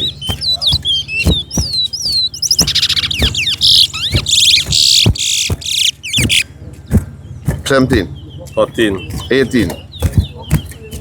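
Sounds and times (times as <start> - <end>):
dull knocks: 0.0 - 8.1
finch singing buzzy trills: 0.0 - 11.0
low steady hum: 0.0 - 11.0.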